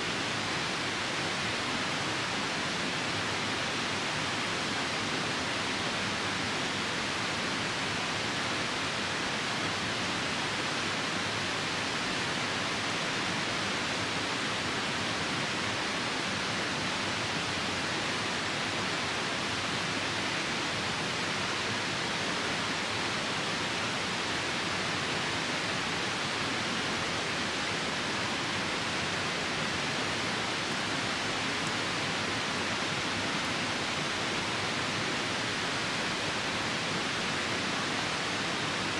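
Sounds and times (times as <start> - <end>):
rain falling: 0.0 - 38.9
river rushing: 0.0 - 38.9.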